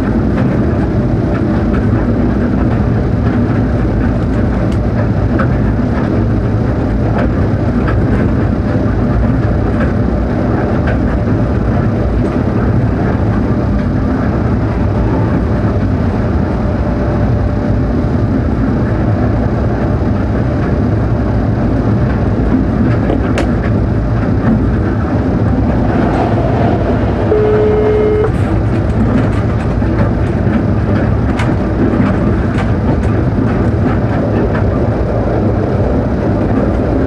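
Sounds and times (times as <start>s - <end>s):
wheels rumbling on rail: 0.0s - 37.0s
passing train clicks: 22.5s - 37.0s
steady tone: 24.6s - 29.2s.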